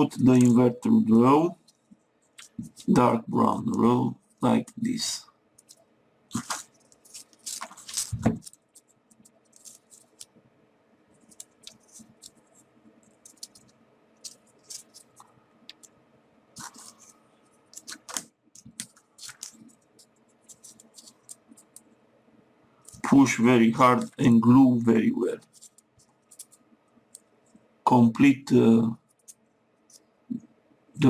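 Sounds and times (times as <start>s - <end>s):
paper pieces clicking and scratching: 6.4s - 10.3s, 11.2s - 15.9s, 16.6s - 21.8s, 22.8s - 23.1s, 25.4s - 26.6s.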